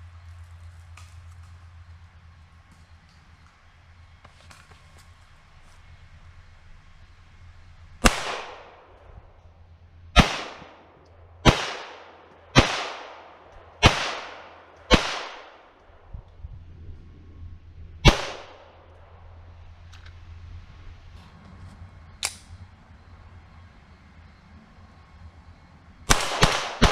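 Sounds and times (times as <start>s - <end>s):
pistol shots with echo: 8.0s - 8.9s, 10.2s - 15.8s, 18.0s - 18.8s, 26.1s - 26.9s.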